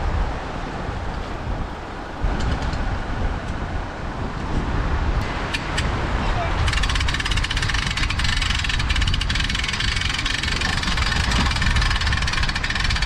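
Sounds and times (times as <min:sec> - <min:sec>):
outboard motor running: 0:06.7 - 0:13.0.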